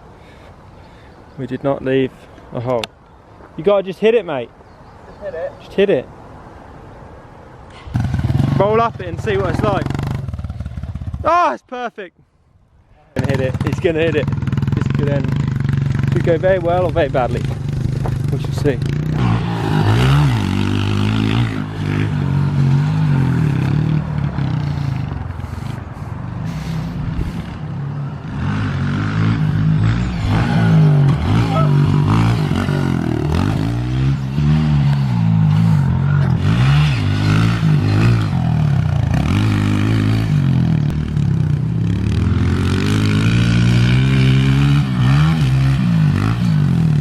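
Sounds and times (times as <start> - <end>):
pit bike engine revving: 7.8 - 11.3, 13.2 - 47.0.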